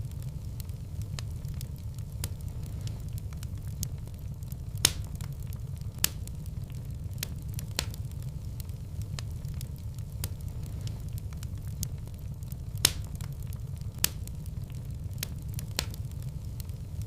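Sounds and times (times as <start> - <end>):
fire crackling: 0.0 - 17.0
low rumble of flames: 0.0 - 17.0
sharp pops: 4.8 - 5.4, 12.8 - 13.3.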